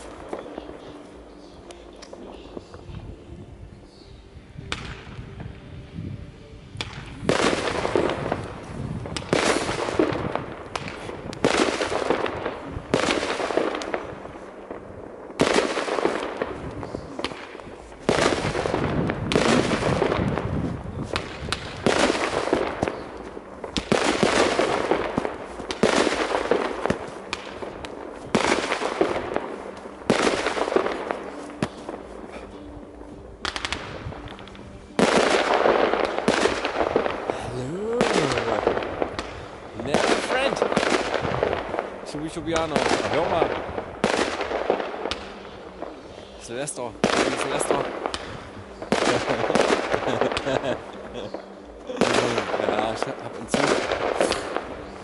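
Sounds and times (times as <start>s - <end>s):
fireworks bangs: 4.6s - 5.7s, 6.8s - 55.0s.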